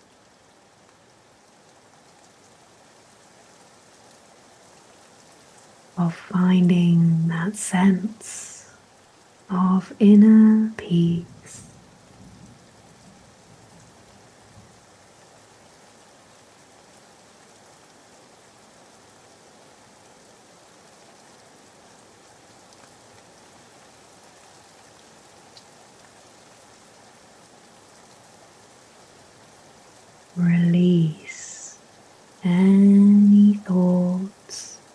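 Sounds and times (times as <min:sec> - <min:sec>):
soft rain falling: 0:00.0 - 0:34.9.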